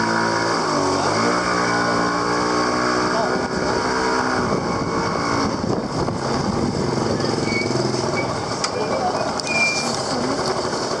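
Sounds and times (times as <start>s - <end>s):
motorcycle engine running: 0.0s - 11.0s
crowd voices: 3.2s - 10.7s
high squeaks: 7.1s - 10.1s.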